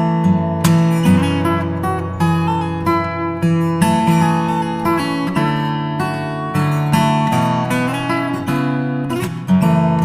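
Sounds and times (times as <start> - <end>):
acoustic guitar plucked and strummed: 0.0 - 10.0.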